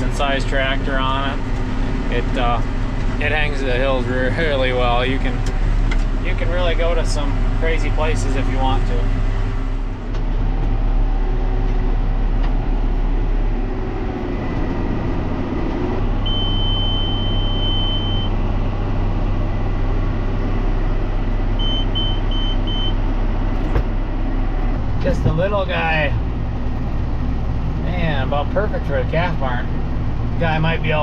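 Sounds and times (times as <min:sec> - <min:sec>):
tractor diesel engine under load: 0:00.0 - 0:31.0
electronic monitor beeps: 0:16.3 - 0:18.3, 0:21.6 - 0:23.0.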